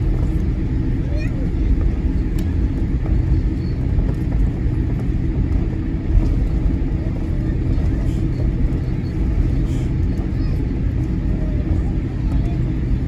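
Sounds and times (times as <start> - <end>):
aircraft cabin rumble while taxiing: 0.0 - 13.0.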